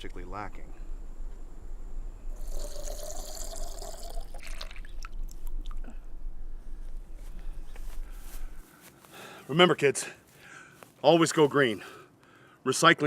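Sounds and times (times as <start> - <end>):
liquid pouring: 2.4 - 5.8.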